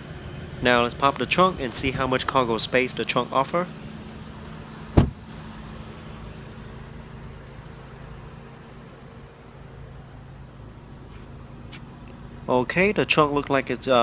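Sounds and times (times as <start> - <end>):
steady low hum: 0.0 - 14.0
trunk latch thump: 4.9 - 5.3.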